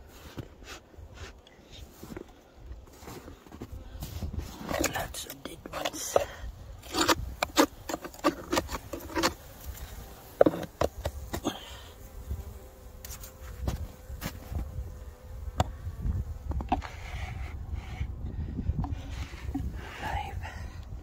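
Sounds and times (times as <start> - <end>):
honeybees buzzing: 2.3 - 20.6
clicks knocks and scrapes: 4.5 - 9.4.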